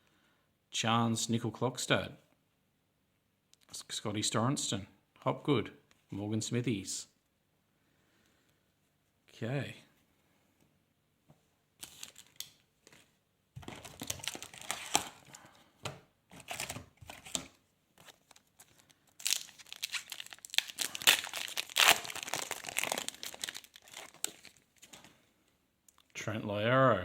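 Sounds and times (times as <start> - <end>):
card pack wrapper tearing and crinkling: 11.8 - 13.0, 13.6 - 15.4, 16.3 - 25.1.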